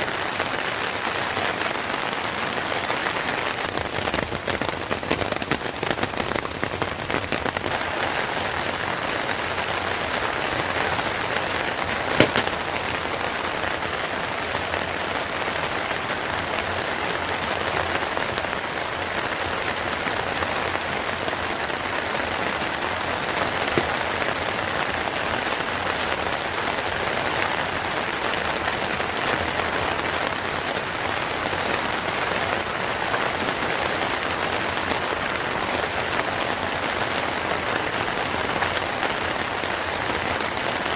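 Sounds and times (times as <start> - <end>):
steady rain falling: 0.0 - 40.9
sharp pops: 10.6 - 12.6.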